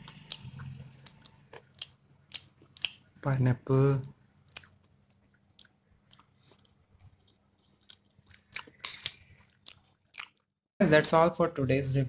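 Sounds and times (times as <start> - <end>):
person chewing wet mouth sounds: 0.0 - 3.2, 4.0 - 10.5.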